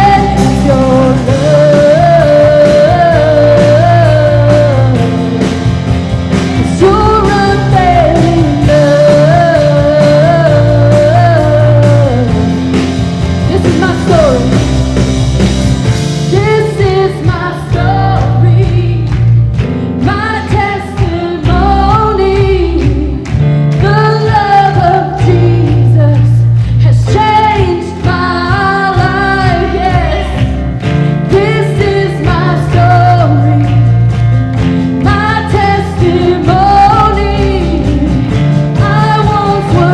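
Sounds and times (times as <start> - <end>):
person singing: 0.0 - 5.7, 6.6 - 12.6
full band playing: 0.0 - 39.9.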